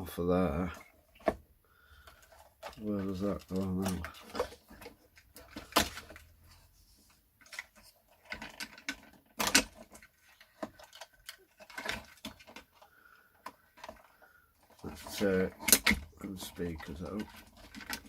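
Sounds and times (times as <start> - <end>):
clicks of small parts and tools: 7.4 - 18.0.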